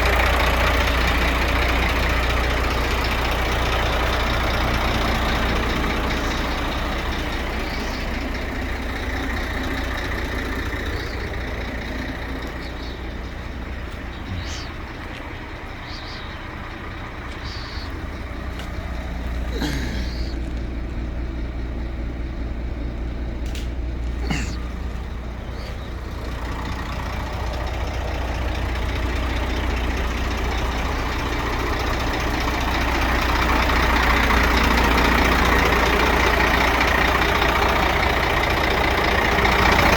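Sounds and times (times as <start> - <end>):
diesel truck engine rumbling: 0.0 - 39.9
high chirps and squeaks: 15.7 - 18.2.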